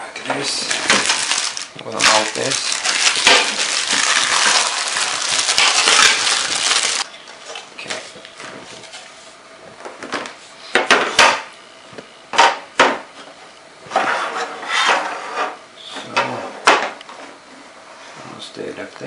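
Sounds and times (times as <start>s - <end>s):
scraping and rubbing: 13.9s - 15.6s.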